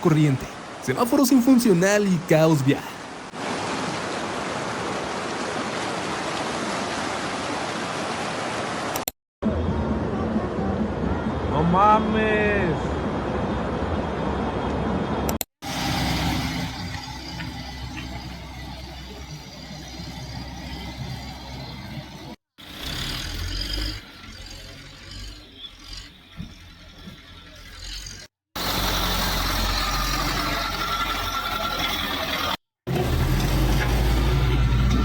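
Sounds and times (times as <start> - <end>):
car engines: 12.4 - 35.0.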